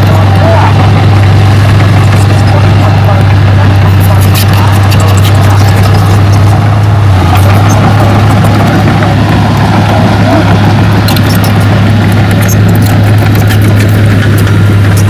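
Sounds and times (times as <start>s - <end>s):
heavy machine diesel engine: 0.0s - 15.0s
light clicks and clatter: 3.8s - 6.6s, 11.0s - 15.0s.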